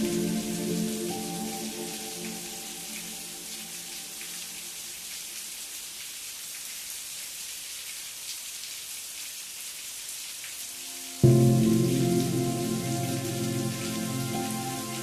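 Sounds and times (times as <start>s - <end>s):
sustained musical chord: 0.0s - 3.7s, 11.2s - 15.0s
steady rain falling: 0.0s - 15.0s.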